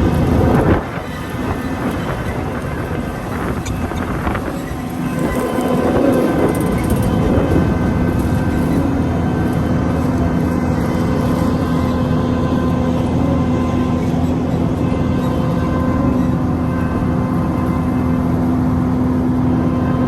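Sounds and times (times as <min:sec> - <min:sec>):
combine harvester hum: 0:00.0 - 0:20.0
steady machine whine: 0:00.0 - 0:20.0.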